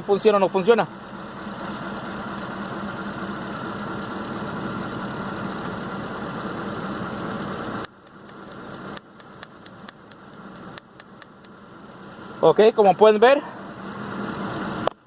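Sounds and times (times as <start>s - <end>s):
car engine idling with misfire: 0.0s - 15.0s
sharp clicks: 7.8s - 11.6s.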